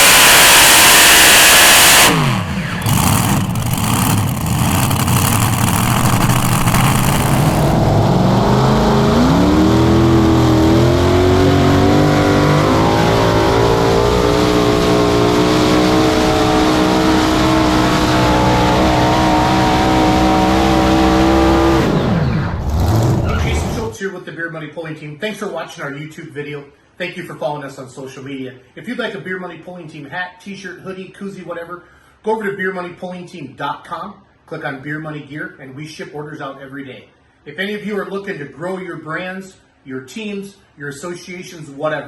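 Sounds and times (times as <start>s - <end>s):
tractor engines under full load: 0.0s - 7.8s.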